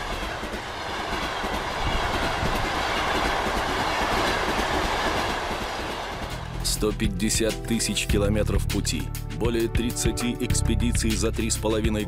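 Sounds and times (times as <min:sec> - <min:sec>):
train passing on rails: 0:00.0 - 0:06.6.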